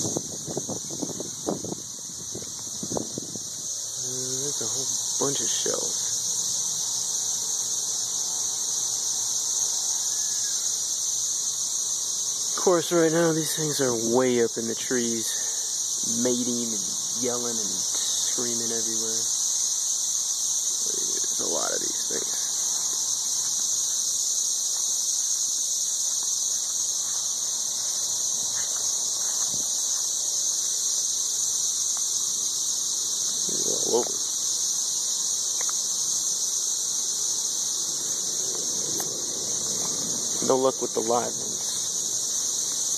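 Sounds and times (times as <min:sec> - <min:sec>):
cicadas droning: 0:00.0 - 0:42.9.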